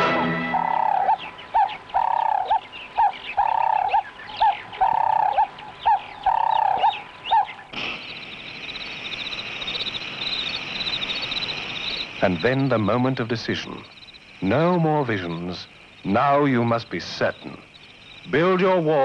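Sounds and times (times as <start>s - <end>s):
bird calling in pairs: 0.0s - 13.0s
high insect trill: 0.1s - 19.0s.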